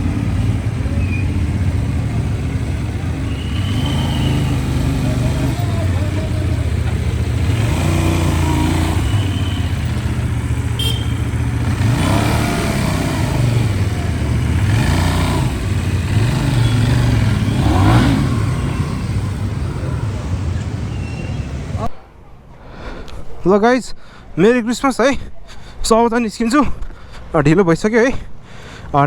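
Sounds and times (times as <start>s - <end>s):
vehicle engine running and revving: 0.0s - 21.8s.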